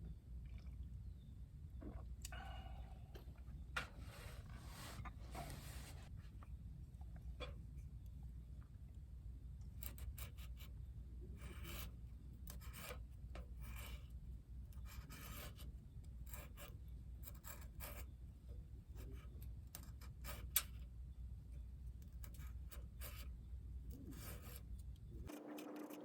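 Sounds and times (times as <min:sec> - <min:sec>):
short scraping strokes: 0:04.0 - 0:06.1.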